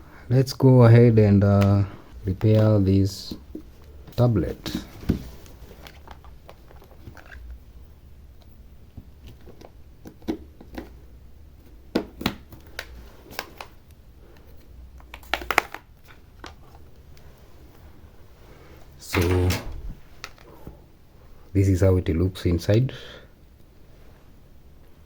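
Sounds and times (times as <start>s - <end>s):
low steady hum: 0.0s - 25.0s
plastic cover being handled: 2.3s - 7.6s.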